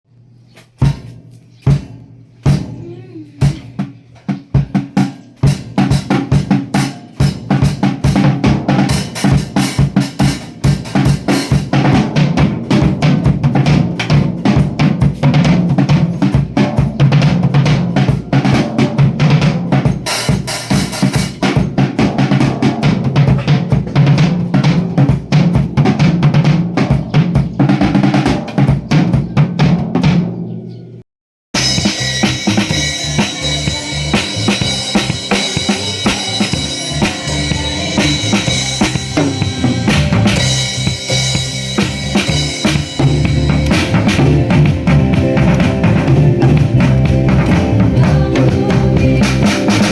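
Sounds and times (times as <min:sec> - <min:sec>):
drum kit playing busy beat: 0:00.5 - 0:30.6, 0:31.5 - 0:49.9
low bass line: 0:31.6 - 0:49.9.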